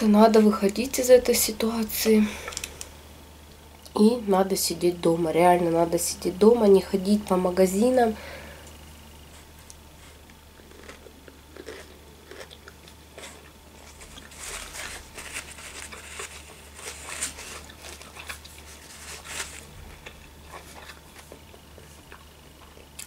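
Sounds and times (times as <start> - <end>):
person chewing food: 9.3 - 23.0.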